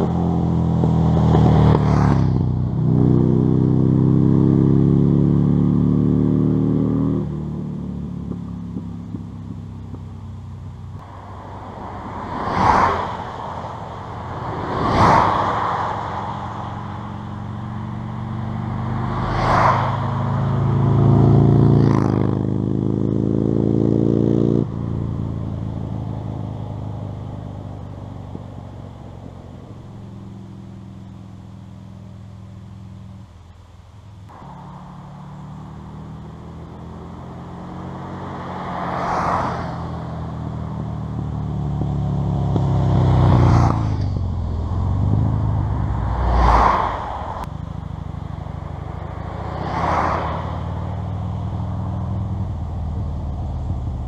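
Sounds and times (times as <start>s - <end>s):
motorcycle engine running: 0.0s - 12.0s, 20.2s - 38.3s, 40.1s - 46.2s.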